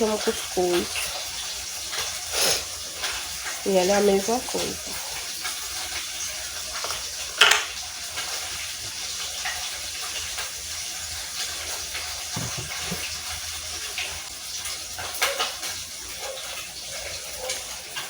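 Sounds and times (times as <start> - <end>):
steady hissing: 0.0 - 7.4.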